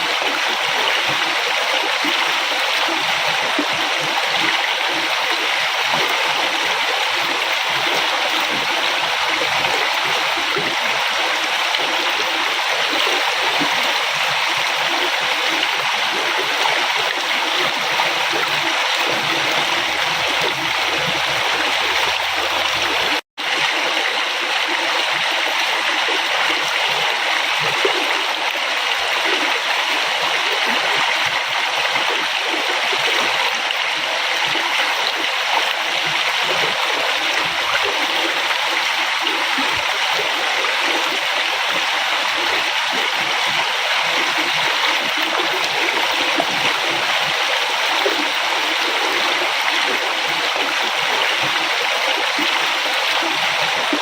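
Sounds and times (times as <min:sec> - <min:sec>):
river water rushing: 0:00.1 - 0:30.5.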